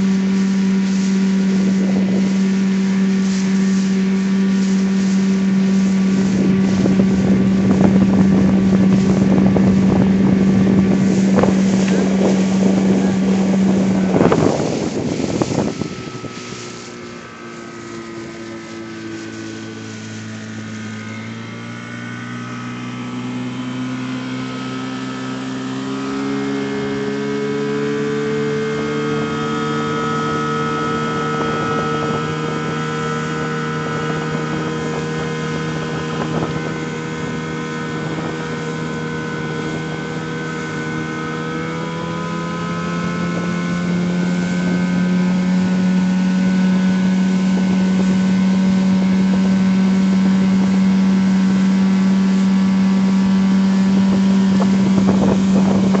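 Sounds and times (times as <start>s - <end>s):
outboard motor running: 0.0s - 56.0s.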